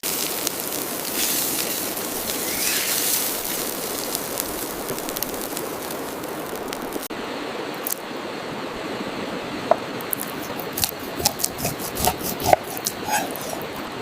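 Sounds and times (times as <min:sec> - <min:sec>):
steak sizzling on hot stone: 0:00.0 - 0:07.1, 0:10.2 - 0:13.6.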